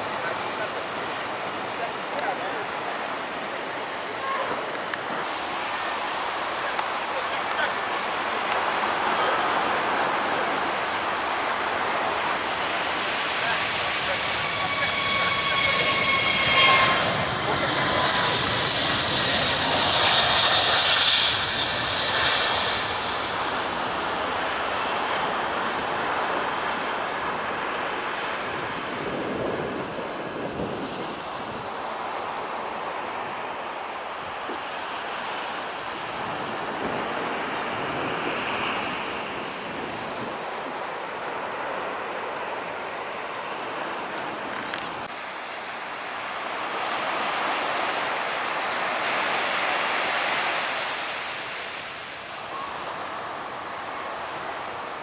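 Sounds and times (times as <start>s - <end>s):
surf washing: 0.0s - 55.0s
aircraft noise: 10.1s - 27.8s
wind on microphone: 11.5s - 32.0s.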